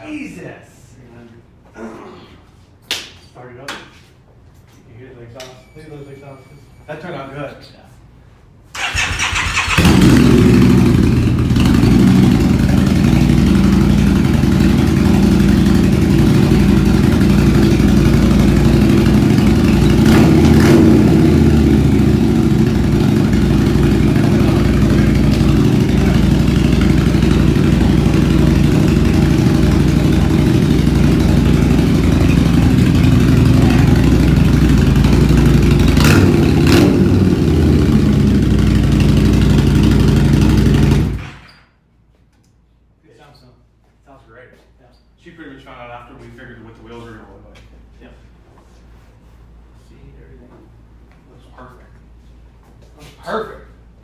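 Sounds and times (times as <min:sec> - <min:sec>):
motorcycle engine idling: 0:08.8 - 0:41.3
motorcycle engine cranking: 0:08.8 - 0:41.5.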